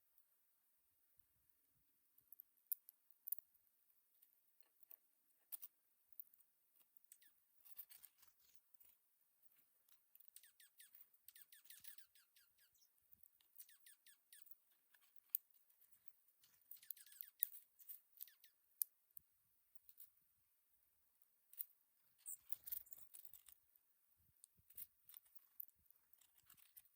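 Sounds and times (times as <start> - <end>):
birds ticking and clicking: 10.1 - 18.6.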